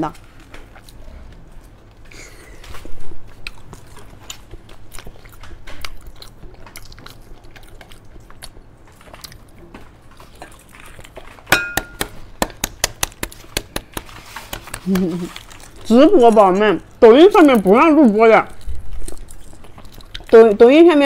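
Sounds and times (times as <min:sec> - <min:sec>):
biting and wet chewing: 0:00.0 - 0:21.0.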